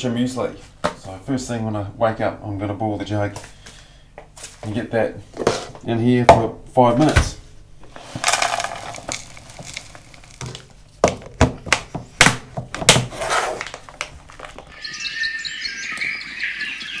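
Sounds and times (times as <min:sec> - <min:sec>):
birds singing: 0:14.7 - 0:17.0.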